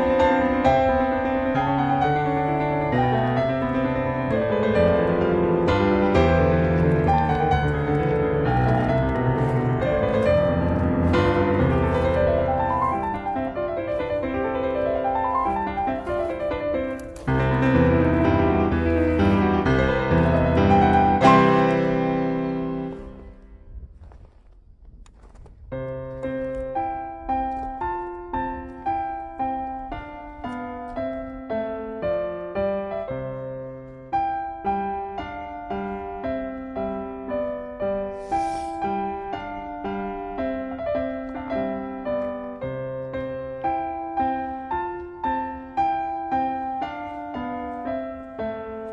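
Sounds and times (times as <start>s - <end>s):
piano music: 0.0s - 23.5s, 25.8s - 48.9s.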